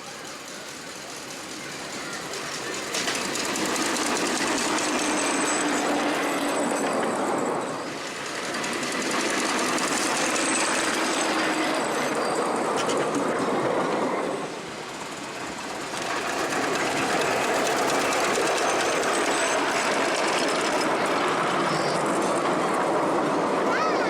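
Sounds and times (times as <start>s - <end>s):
miniature train clattering on track: 0.0s - 24.0s.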